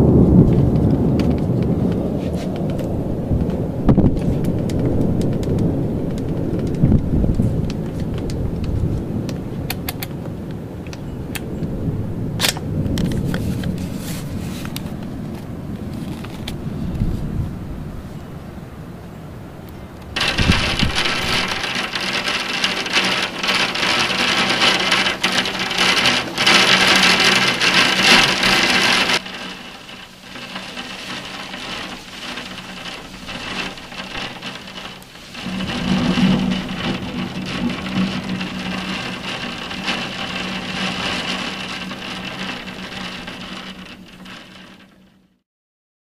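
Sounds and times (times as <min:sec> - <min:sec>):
heavy rain pattering: 0:00.0 - 0:17.4, 0:19.7 - 0:45.4.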